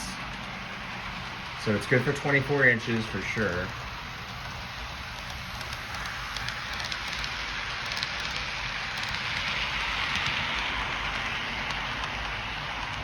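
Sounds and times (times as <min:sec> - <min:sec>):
model train wheels rolling on track: 0:00.0 - 0:13.0.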